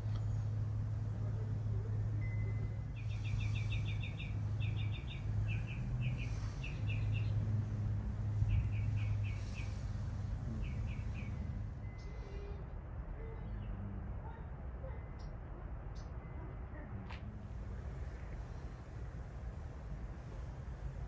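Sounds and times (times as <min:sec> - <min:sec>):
steady low hum: 0:00.0 - 0:21.0
small bird chirping: 0:02.2 - 0:12.6.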